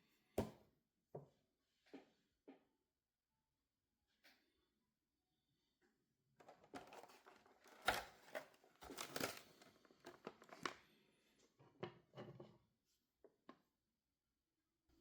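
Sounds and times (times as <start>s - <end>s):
plastic and cardboard crinkling: 6.4s - 10.9s.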